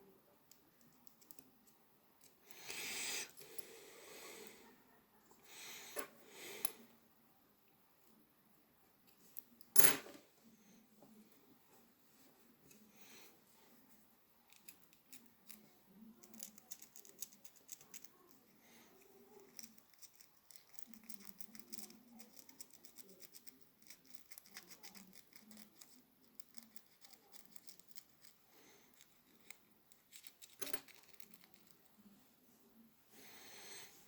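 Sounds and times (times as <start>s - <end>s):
small parts clicking and scraping: 0.5s - 1.5s, 14.5s - 15.6s, 16.2s - 18.4s, 19.4s - 31.9s.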